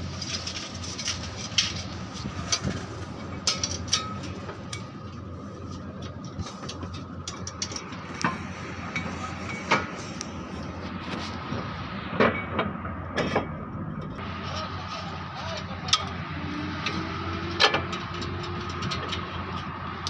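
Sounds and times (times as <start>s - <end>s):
metallic scrapes and clicks: 0.0s - 10.4s.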